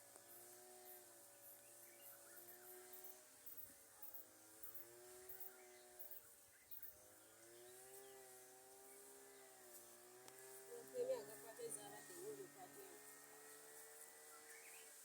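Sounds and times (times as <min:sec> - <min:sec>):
bird chirps: 0:01.3 - 0:08.2, 0:14.3 - 0:15.0.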